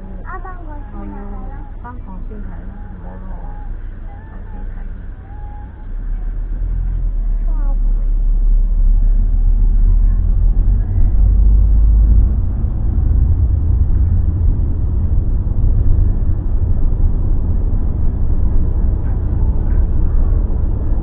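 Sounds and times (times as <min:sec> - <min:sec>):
car cabin road and engine rumble: 0:00.0 - 0:21.0.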